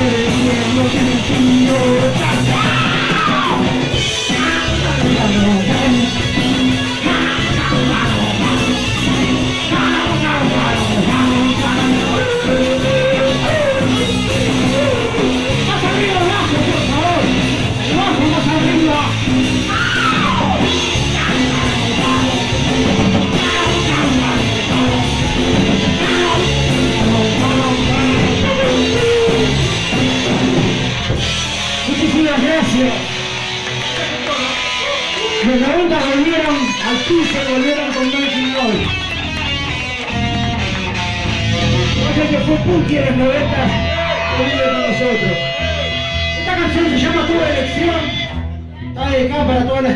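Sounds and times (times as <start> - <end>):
fast drums: 0.0 - 48.1
bass guitar: 0.0 - 49.9
distorted electric guitar: 0.0 - 49.9
person yelling vocals: 1.6 - 9.0, 9.6 - 17.3, 19.7 - 29.8.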